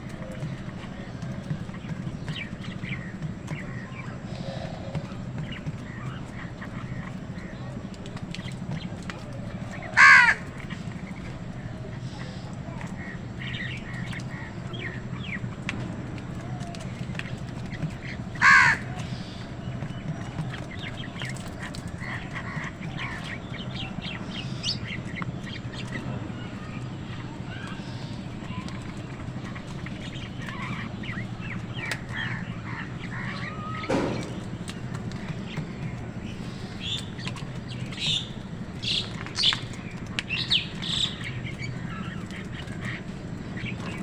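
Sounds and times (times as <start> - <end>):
low steady hum: 0.0 - 44.0
small birds chirping: 0.0 - 44.0
crow cawing: 10.0 - 10.6, 18.4 - 19.0.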